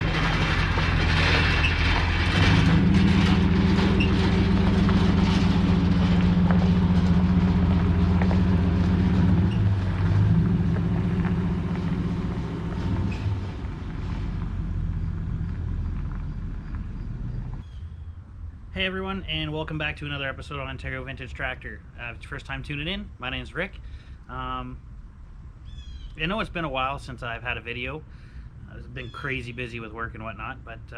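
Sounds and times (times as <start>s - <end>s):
vehicle engine running: 0.0s - 22.5s.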